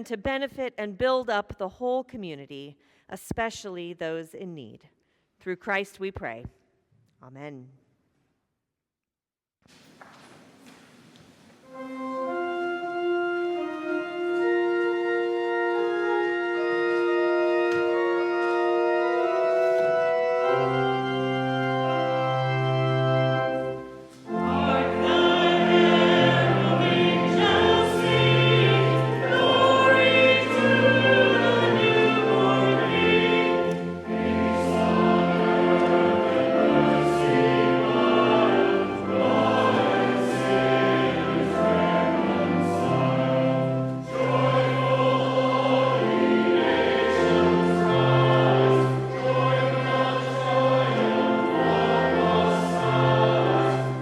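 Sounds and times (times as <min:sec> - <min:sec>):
organ playing chords: 0:11.6 - 0:54.0
voices singing a hymn: 0:11.7 - 0:54.0
organ bass notes: 0:11.8 - 0:54.0.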